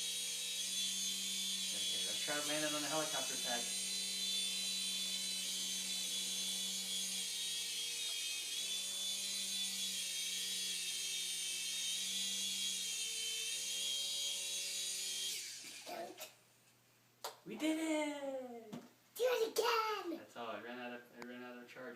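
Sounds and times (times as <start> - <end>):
toy helicopter motor whine: 0.0 - 16.2.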